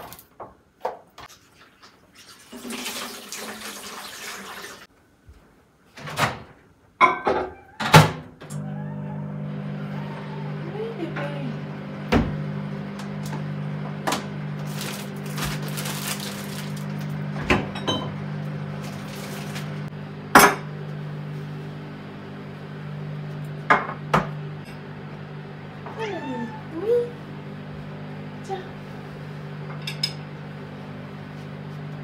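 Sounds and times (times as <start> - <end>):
dishes and utensils clinking: 17.5 - 18.2, 29.7 - 30.2.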